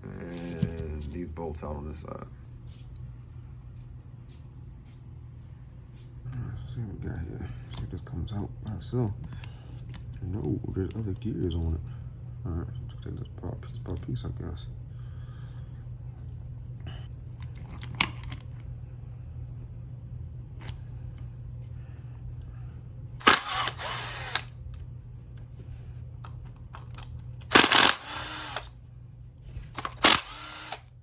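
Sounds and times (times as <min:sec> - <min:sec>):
cordless drill whirring: 0:23.2 - 0:24.5, 0:27.5 - 0:28.7, 0:29.8 - 0:30.9.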